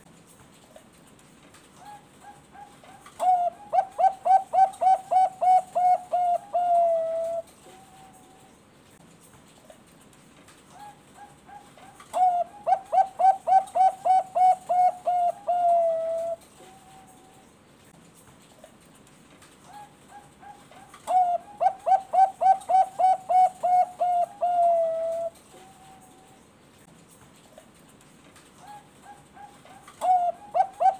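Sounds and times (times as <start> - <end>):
dove singing: 1.8 - 8.6, 10.8 - 17.5, 19.6 - 26.4, 28.6 - 30.9.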